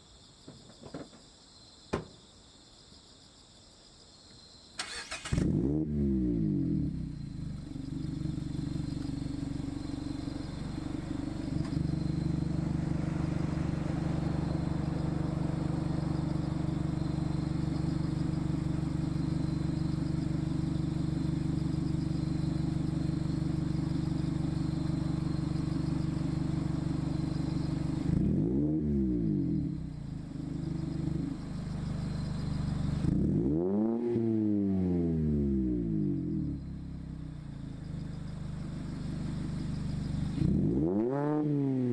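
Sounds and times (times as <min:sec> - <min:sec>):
engine throttle blips: 0:04.8 - 0:34.4
car exhaust drone: 0:05.2 - 0:41.9.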